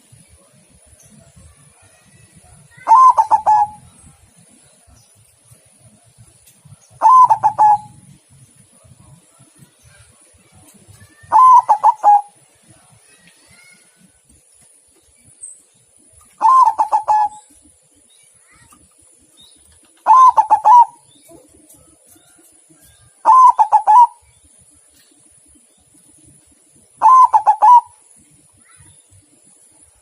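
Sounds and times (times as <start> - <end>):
dove cooing: 2.8 - 3.9, 7.0 - 8.0, 11.2 - 12.4, 16.4 - 17.6, 20.0 - 21.6, 23.2 - 24.2, 27.0 - 28.0.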